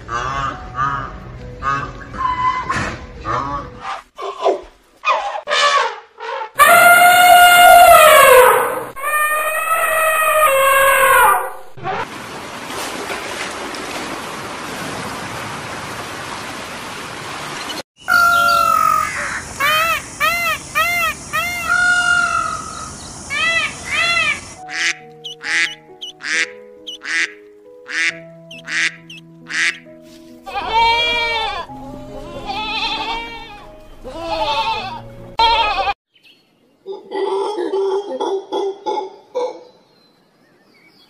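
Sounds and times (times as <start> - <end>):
peafowl calling: 5.1 - 11.8, 18.0 - 29.9
rushing hiss like water: 19.2 - 24.8
sheep bleating: 30.5 - 36.0.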